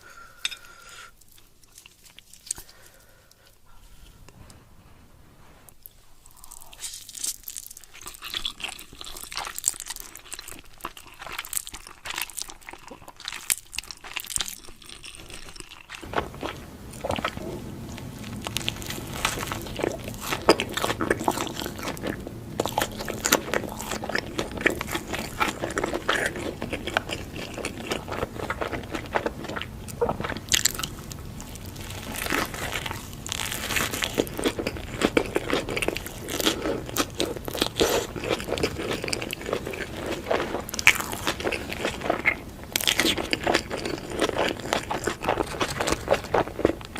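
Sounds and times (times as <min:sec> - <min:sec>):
crunchy food chewing: 0:05.8 - 0:46.9
steady low hum: 0:16.0 - 0:44.5.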